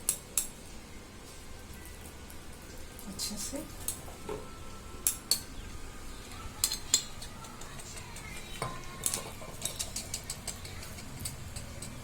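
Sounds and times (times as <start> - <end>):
metal utensil scraping a plate: 6.6 - 12.0.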